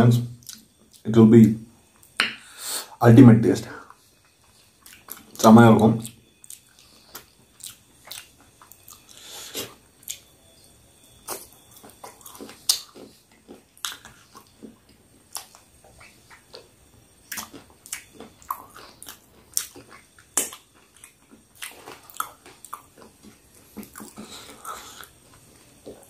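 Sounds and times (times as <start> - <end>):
person chewing and biting: 6.3 - 10.2, 11.2 - 16.7, 17.3 - 26.0
wet mouth smacks and crunches: 19.0 - 21.0.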